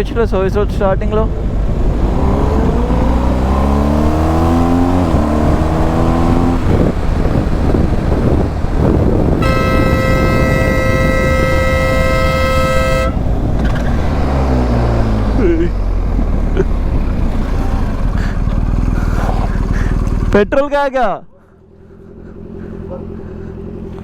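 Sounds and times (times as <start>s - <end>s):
motorcycle engine accelerating: 0.0s - 20.6s, 21.5s - 24.0s
wind rush: 1.2s - 15.4s
horn steady note: 9.3s - 13.3s.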